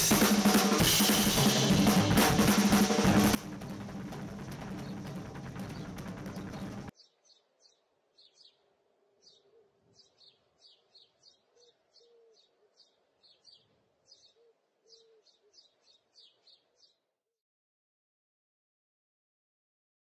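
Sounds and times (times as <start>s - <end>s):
bird chirping: 3.4s - 17.1s.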